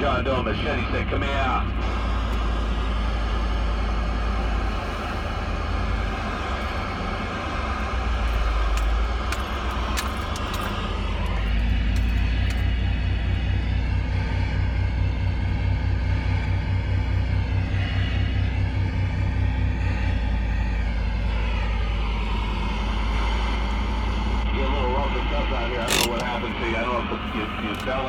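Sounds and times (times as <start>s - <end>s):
truck engine idling: 0.0s - 28.0s
radio static hiss: 24.6s - 28.0s.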